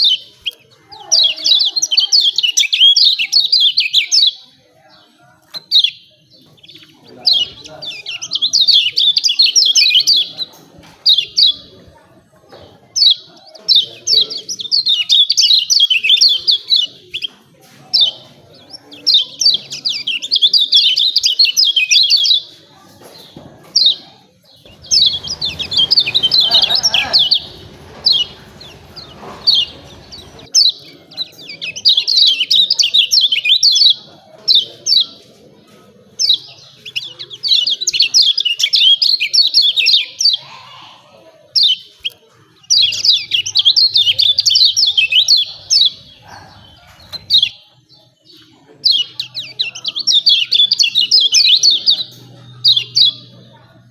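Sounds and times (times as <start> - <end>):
birds chattering calls: 0.0 - 53.9
low rumbling noise: 24.7 - 30.5.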